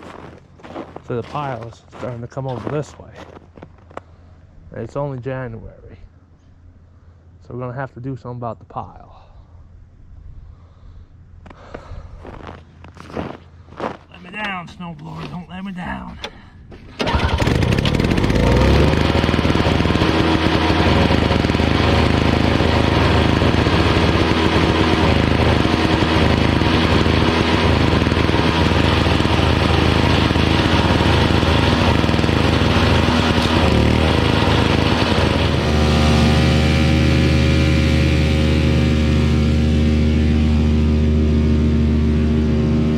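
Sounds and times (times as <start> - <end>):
snowblower engine running: 17.0 - 42.9.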